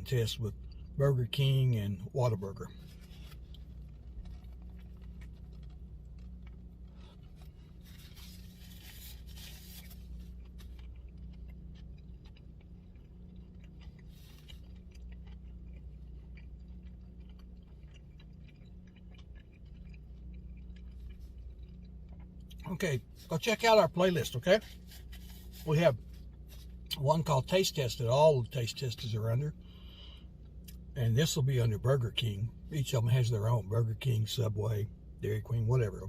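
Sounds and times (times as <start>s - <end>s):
steady low hum: 0.0s - 36.0s
man chewing: 2.6s - 27.3s
rustling: 2.7s - 10.8s.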